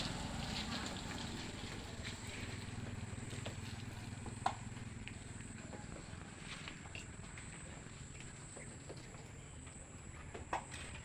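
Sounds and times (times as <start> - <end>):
small engine running: 0.0 - 5.5.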